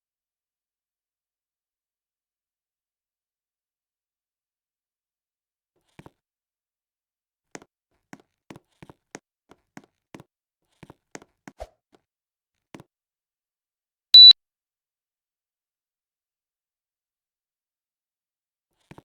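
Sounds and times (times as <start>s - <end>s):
air conditioner beep: 14.2s - 14.4s.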